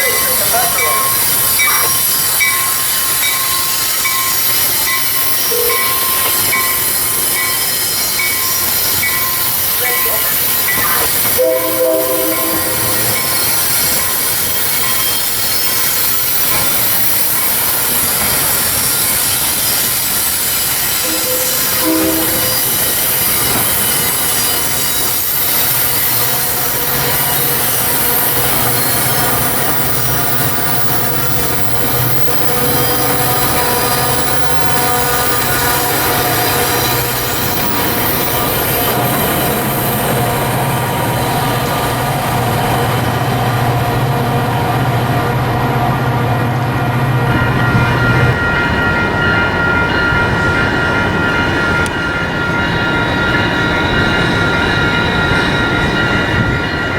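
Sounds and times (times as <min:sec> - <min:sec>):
steel wheels squealing on rails: 0:00.0 - 0:56.9
train rumbling on tracks: 0:00.0 - 0:56.9
train horn tones: 0:09.8 - 0:13.9, 0:21.0 - 0:24.5, 0:26.0 - 0:38.0.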